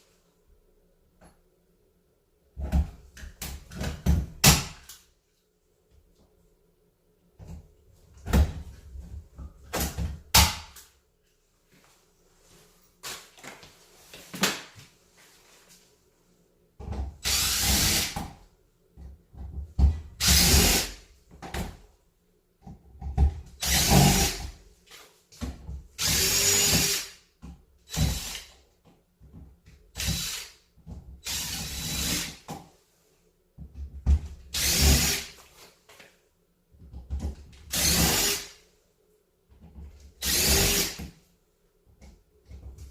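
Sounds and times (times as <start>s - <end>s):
drill driving screws into wood: 17.2s - 18.3s, 20.2s - 21.0s, 23.6s - 24.5s, 26.0s - 27.2s, 27.9s - 28.6s, 30.0s - 30.6s, 31.2s - 32.5s, 34.5s - 35.4s, 37.7s - 38.6s, 40.2s - 41.1s.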